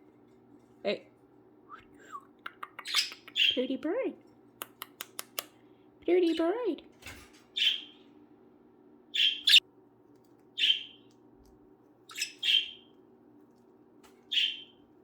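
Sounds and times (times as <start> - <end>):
budgerigars chirping: 2.8 - 3.6, 7.6 - 8.0, 9.1 - 9.6, 10.6 - 11.0, 12.1 - 12.9, 14.3 - 14.8.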